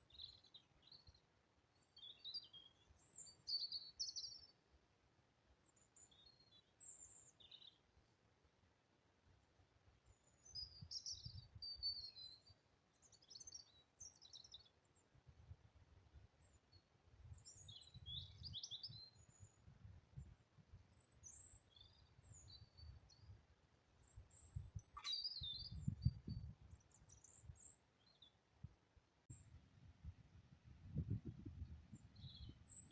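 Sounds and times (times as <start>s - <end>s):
birds chirping and trilling: 24.3s - 28.3s.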